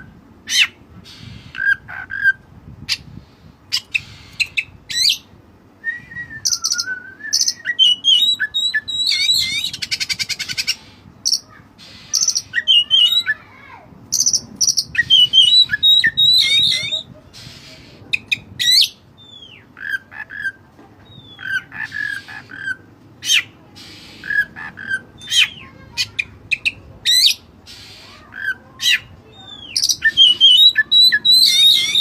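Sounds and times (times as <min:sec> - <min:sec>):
songbird singing whistles and trills: 0:03.7 - 0:10.8, 0:12.2 - 0:13.4, 0:14.2 - 0:17.1, 0:28.9 - 0:32.0.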